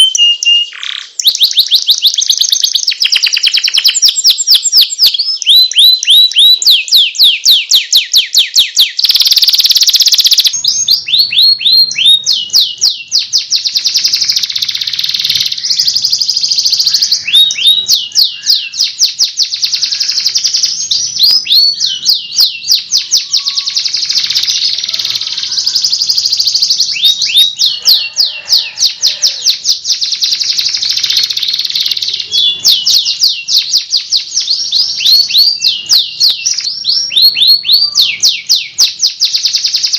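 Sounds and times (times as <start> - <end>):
canary singing chirps and trills: 0.0 - 39.9.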